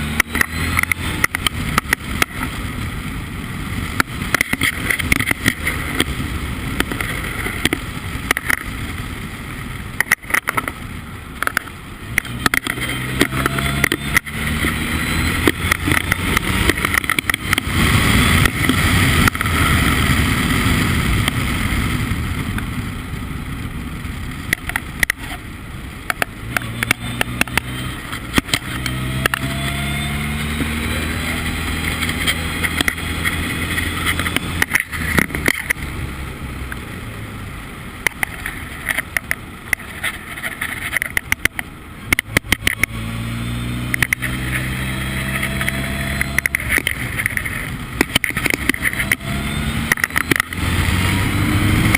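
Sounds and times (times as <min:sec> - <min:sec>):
wind and road noise: 0:00.0 - 0:51.9
race car engine accelerating: 0:12.2 - 0:20.2, 0:26.5 - 0:36.0, 0:42.1 - 0:51.9.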